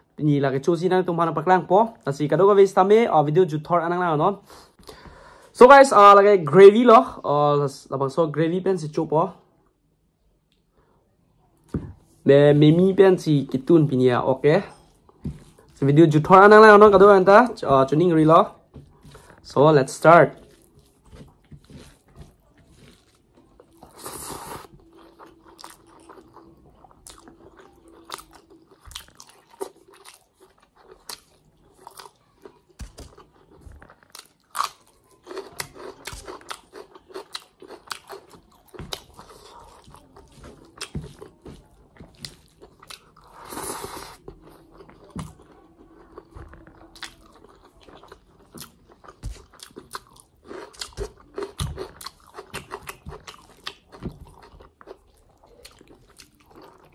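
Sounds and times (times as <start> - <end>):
person chewing food: 14.6 - 56.9.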